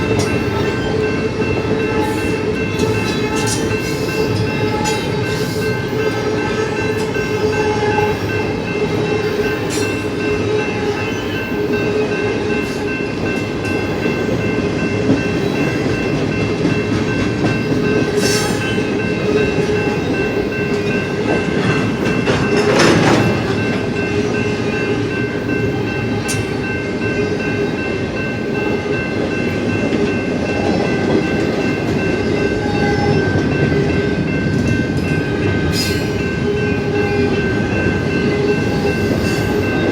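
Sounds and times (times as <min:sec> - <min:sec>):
freight train rumbling past: 0:00.0 - 0:39.9
high ringing of wheels on rails: 0:00.0 - 0:39.9.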